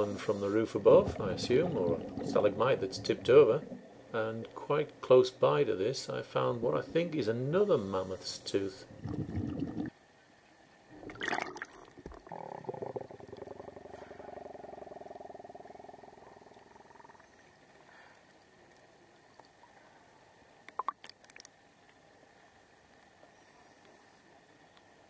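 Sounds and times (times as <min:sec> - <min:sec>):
regulator inhalation hiss: 0:00.0 - 0:00.8, 0:07.6 - 0:08.9
exhaled bubbles underwater: 0:00.0 - 0:04.1, 0:08.9 - 0:09.9, 0:10.9 - 0:17.4.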